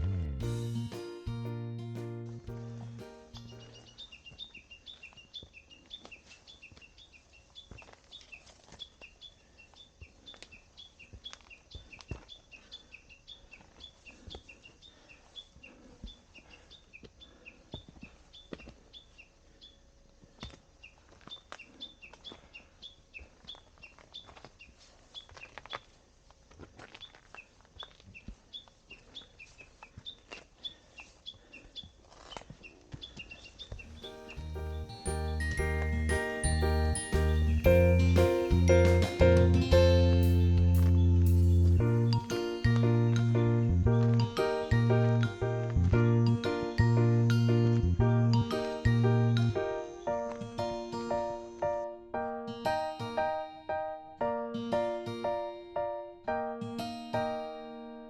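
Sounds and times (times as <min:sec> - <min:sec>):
small bird chirping: 0:02.8 - 0:26.0, 0:26.9 - 0:43.3.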